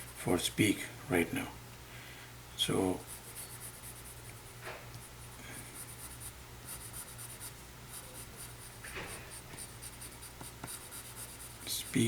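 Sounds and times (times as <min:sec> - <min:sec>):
pencil scratching on paper: 0:03.0 - 0:04.2, 0:05.8 - 0:12.0.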